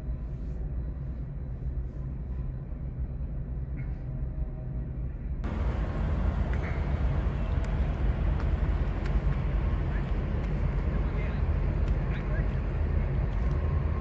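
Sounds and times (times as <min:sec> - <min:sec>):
vehicle engine idling: 0:05.4 - 0:14.0.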